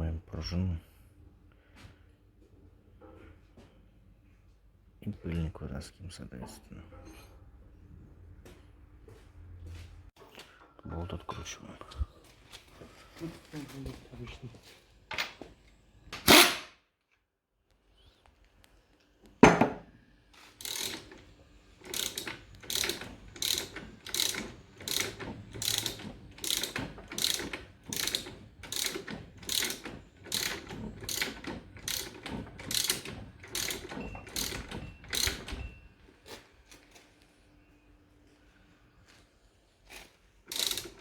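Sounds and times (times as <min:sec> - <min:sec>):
ratchet wrench clicking: 0:20.6 - 0:21.2, 0:21.9 - 0:35.4, 0:40.5 - 0:41.0.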